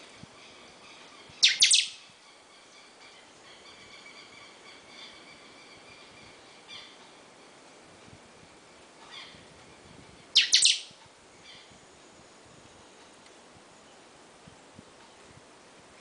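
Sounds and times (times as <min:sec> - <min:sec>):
faint bird chirps: 0:00.0 - 0:07.8, 0:08.4 - 0:14.2
bird sharp falling calls: 0:01.4 - 0:02.0, 0:10.4 - 0:11.0.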